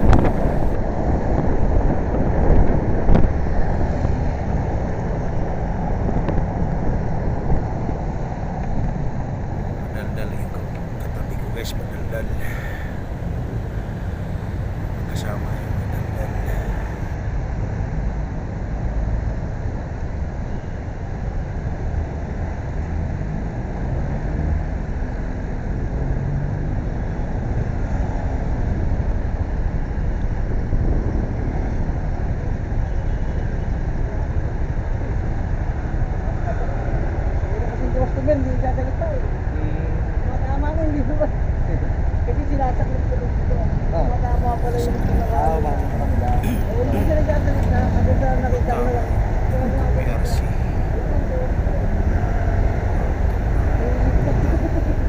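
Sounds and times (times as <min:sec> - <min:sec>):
faint vehicle engine hum: 0:00.0 - 0:01.5, 0:02.5 - 0:55.0
wind rushing over microphone: 0:00.0 - 0:20.4, 0:38.8 - 0:55.0
road noise: 0:00.0 - 0:55.0.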